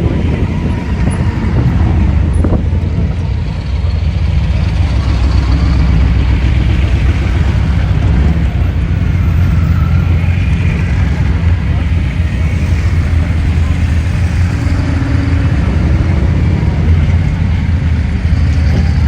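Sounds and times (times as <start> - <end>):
motorcycle engines rumbling: 0.0 - 19.0.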